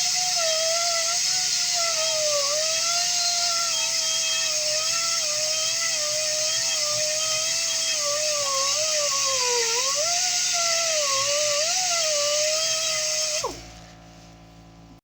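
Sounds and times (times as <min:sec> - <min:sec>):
air sanding disc whining: 0:00.0 - 0:14.5
exhaust air hiss: 0:08.0 - 0:14.6.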